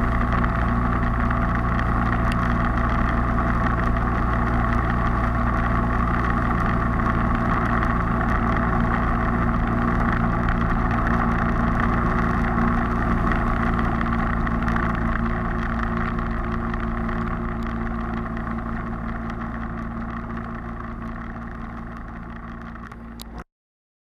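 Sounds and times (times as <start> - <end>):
motorcycle engine running: 0.0 - 23.4
road and wind noise: 0.0 - 23.4.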